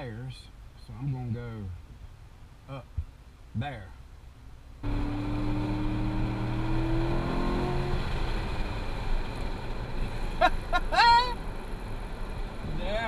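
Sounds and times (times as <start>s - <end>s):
road and wind noise: 0.0s - 13.0s
car engine revving: 4.8s - 13.0s.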